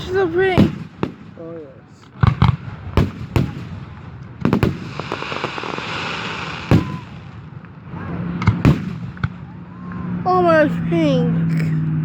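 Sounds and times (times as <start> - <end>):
firework bangs: 0.0 - 9.9
high hiss: 4.8 - 7.1.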